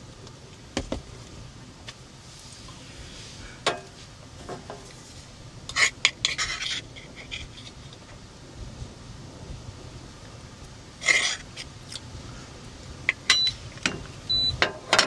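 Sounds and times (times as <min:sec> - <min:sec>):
low background noise: 0:00.0 - 0:15.0
clatter of utensils: 0:14.6 - 0:15.0.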